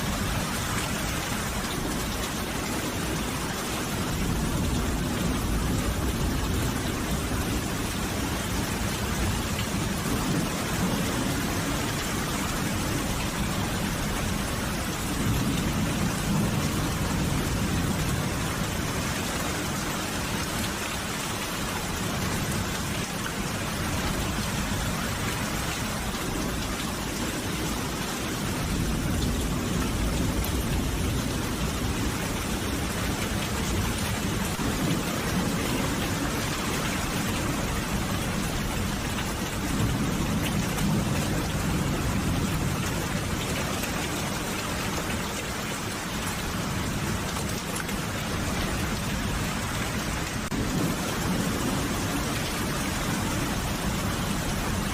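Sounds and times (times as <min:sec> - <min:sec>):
rain falling: 0:00.0 - 0:54.9
thunder rumbling: 0:46.5 - 0:54.9.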